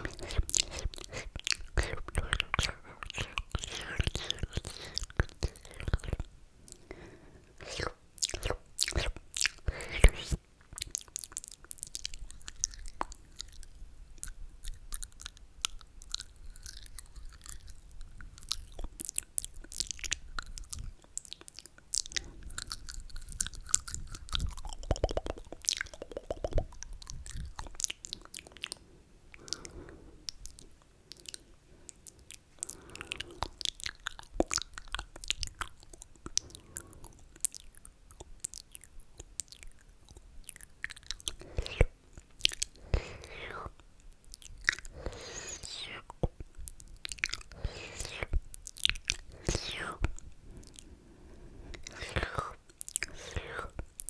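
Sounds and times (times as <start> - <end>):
wet mouth slurping and sucking: 0.0 - 6.9, 7.6 - 13.6, 16.2 - 28.8, 40.8 - 54.0
sharp mouth clicks: 0.0 - 7.0, 7.6 - 50.9, 51.6 - 54.0.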